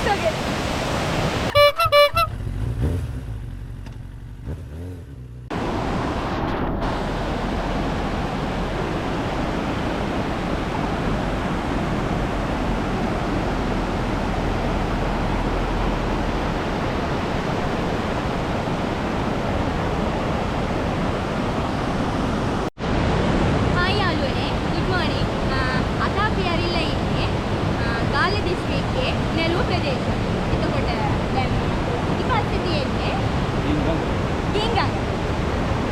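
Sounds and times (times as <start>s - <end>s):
rushing river water: 0.0s - 2.3s, 5.5s - 35.9s.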